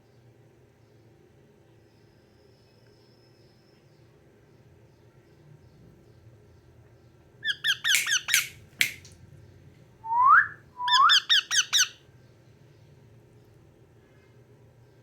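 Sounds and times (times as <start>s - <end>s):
parakeet chirping: 7.4s - 9.0s, 10.4s - 12.0s
parakeet rising whistle: 10.1s - 11.9s.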